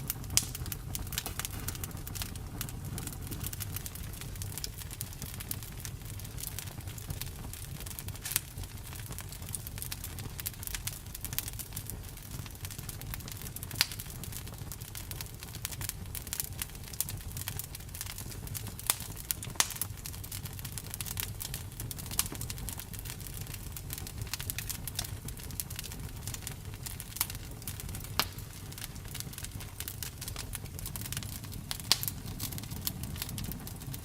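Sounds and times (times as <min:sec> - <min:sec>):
campfire crackling and popping: 0:00.0 - 0:34.0
low rumble: 0:30.7 - 0:34.0.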